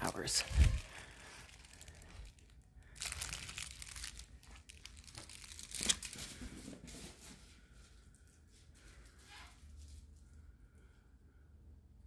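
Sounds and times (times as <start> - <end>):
rustling and crunching: 0.0 - 10.4
dog chewing and tearing plush toy: 3.0 - 6.2.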